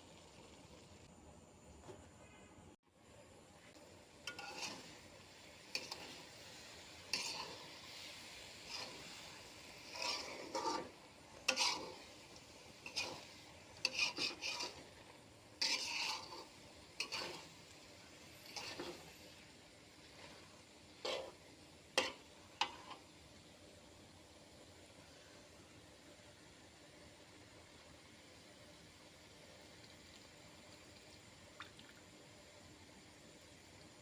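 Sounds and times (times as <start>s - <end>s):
spatula scraping cooking pan: 4.1s - 23.2s.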